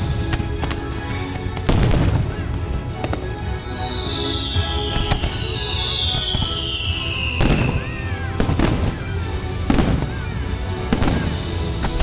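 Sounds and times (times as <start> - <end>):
firework bangs: 0.0 - 12.0
music through loudspeakers: 0.0 - 12.0
firework whistle gliding down: 3.0 - 8.8.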